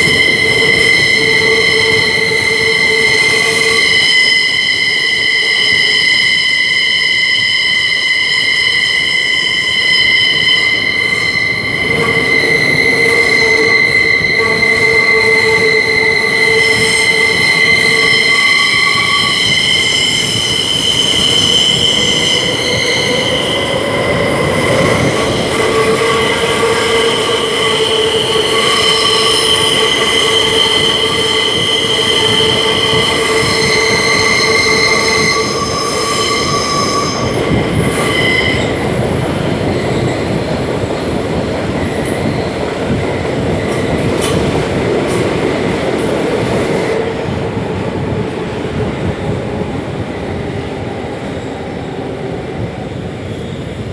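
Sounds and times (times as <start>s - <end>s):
train wheels squealing: 0.0s - 47.1s, 52.9s - 53.9s
train running gear rumble: 10.3s - 51.6s.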